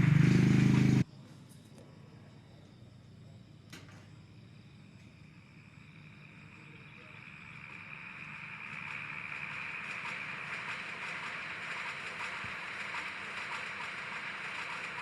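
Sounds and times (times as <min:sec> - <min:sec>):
toy train motor whirring: 0:06.0 - 0:15.0.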